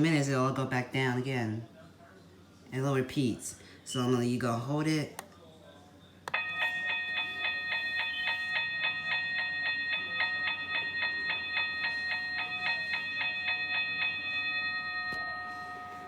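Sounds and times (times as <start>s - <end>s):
toy crossing bell ringing: 6.3s - 16.0s.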